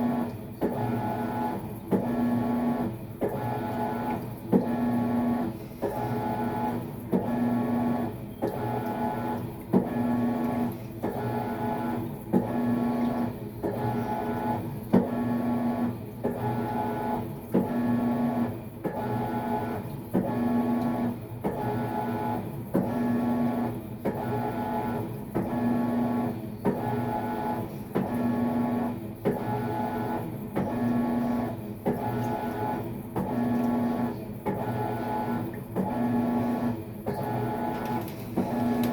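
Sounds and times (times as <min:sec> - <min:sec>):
washing machine motor agitating: 0:00.0 - 0:38.9
washing machine click: 0:37.7 - 0:38.9.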